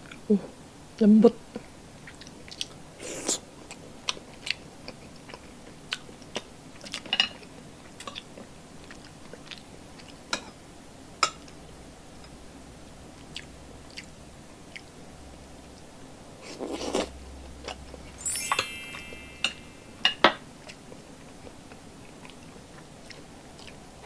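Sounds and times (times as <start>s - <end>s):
quiet chewing with wet clicks: 1.5s - 2.8s, 3.7s - 10.6s, 13.2s - 15.0s, 21.4s - 23.8s.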